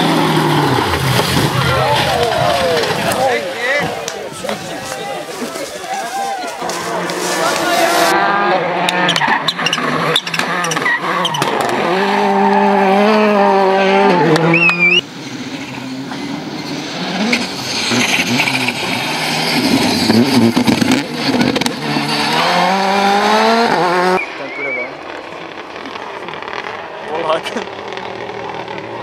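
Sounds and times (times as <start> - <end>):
rally car engines revving: 0.0 - 29.0
tyre squeal: 9.0 - 15.6.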